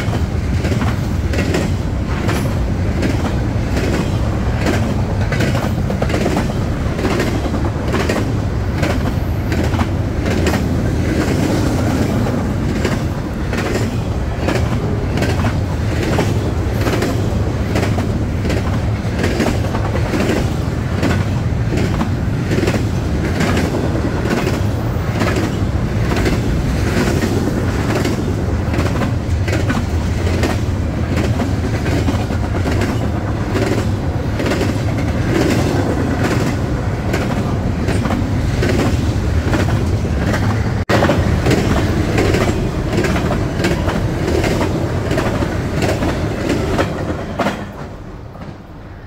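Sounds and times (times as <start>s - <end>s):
train wheels clacking over rail joints: 0.0s - 48.6s
train low rumble: 0.0s - 49.0s.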